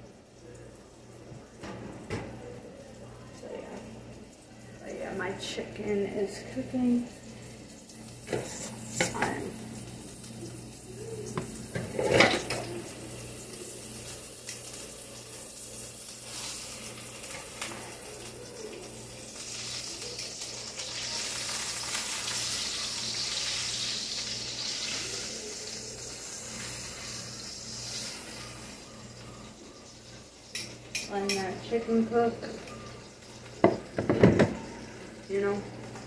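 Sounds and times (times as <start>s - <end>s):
chicken frying in oil: 0.0s - 36.0s
kitchenware clattering: 8.2s - 9.5s, 11.3s - 13.0s, 30.1s - 35.0s.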